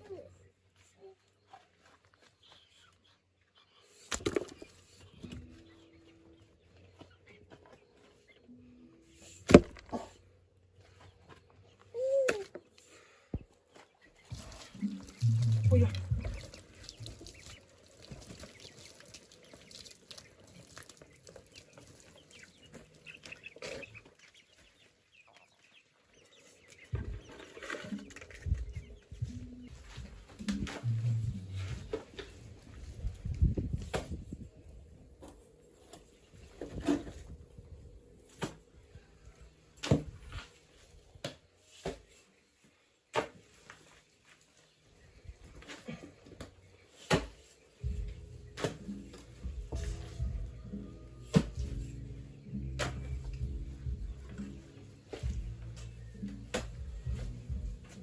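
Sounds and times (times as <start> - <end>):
chickens clucking: 21.3 - 32.2.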